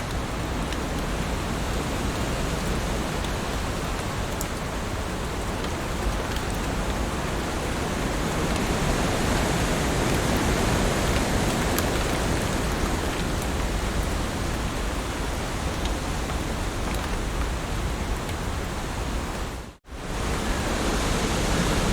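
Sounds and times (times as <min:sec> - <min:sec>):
faint raindrop ticks: 0:00.0 - 0:19.4
heavy rain hissing: 0:17.5 - 0:21.9.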